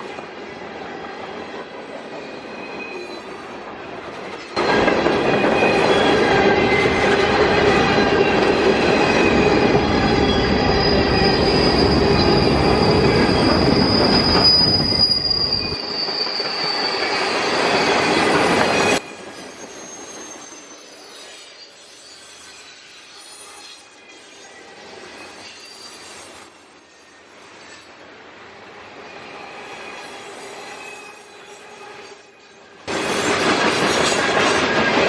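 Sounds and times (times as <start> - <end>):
train wheels squealing: 0.0 - 35.0
train wheels rumbling: 4.0 - 19.8.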